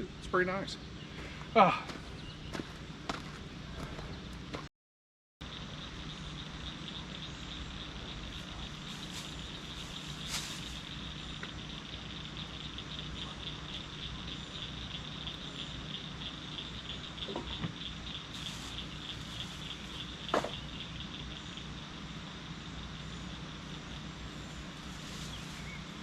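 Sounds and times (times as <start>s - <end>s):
high-pitched insect calls: 5.4s - 26.0s
low steady hum: 5.4s - 26.0s.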